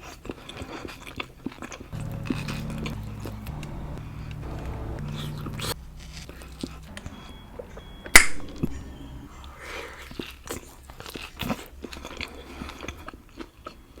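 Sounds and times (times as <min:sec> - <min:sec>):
chewing with wet clicks: 0:00.0 - 0:01.9, 0:10.1 - 0:14.0.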